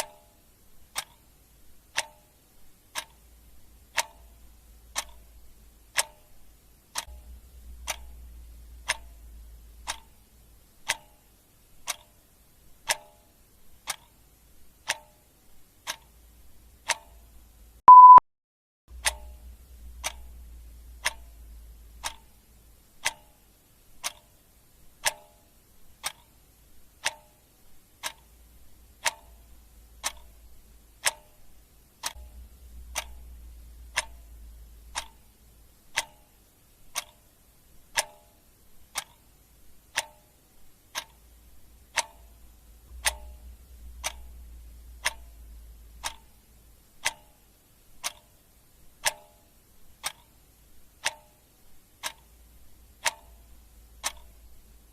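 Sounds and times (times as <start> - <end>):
clock ticking: 0.0 - 18.2, 18.9 - 54.9
faint low hum: 0.0 - 18.2, 18.9 - 54.9.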